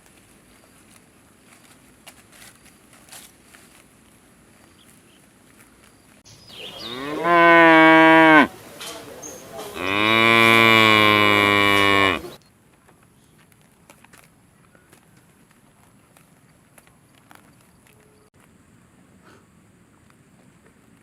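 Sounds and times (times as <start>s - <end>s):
cow mooing: 6.8s - 8.5s, 9.7s - 12.4s.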